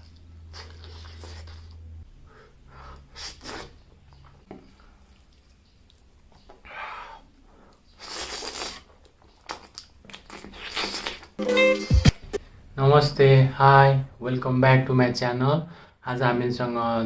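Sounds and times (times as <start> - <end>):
crunching and chewing food: 0.0 - 1.9, 8.0 - 11.4.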